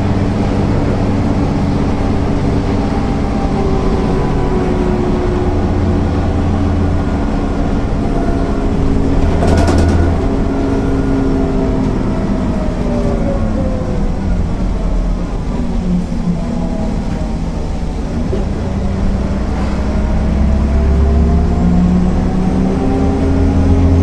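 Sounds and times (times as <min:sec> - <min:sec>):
bus diesel engine running: 0:00.0 - 0:24.0
loud noise burst: 0:08.5 - 0:11.4.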